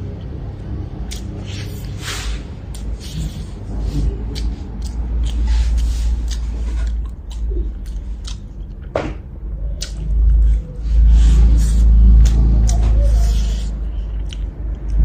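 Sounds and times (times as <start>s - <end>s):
low rumble: 0.0s - 15.0s
person chewing food: 0.1s - 15.0s.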